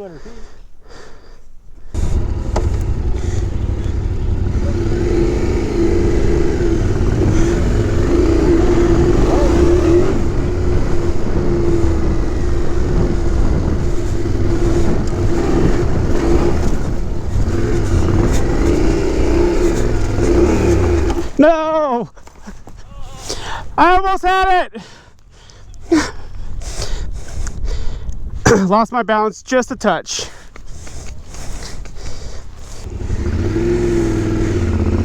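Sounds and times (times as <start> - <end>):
heavy low rumble: 1.9 - 21.4
motorcycle engine running hard: 1.9 - 21.4, 32.8 - 35.0.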